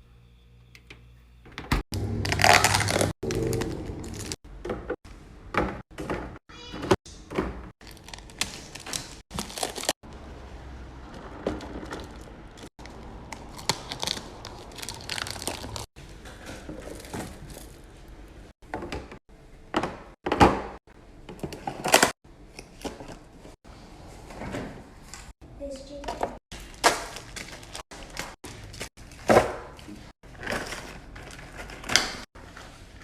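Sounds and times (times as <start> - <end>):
plastic packaging crinkling: 2.2 - 4.4, 7.8 - 10.0, 12.0 - 15.9.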